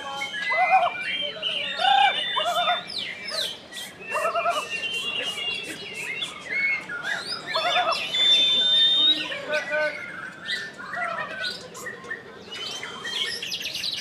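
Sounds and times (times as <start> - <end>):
bird singing whistles: 0.1 - 10.7.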